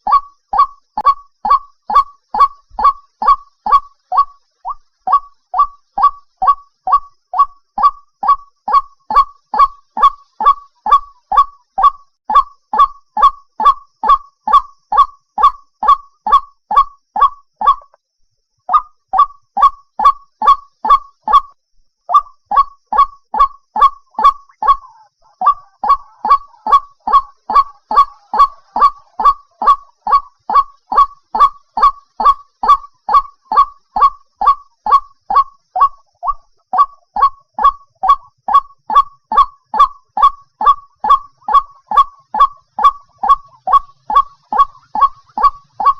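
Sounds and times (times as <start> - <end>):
waterhen calling: 0.0 - 18.0, 18.7 - 21.4, 22.1 - 45.9.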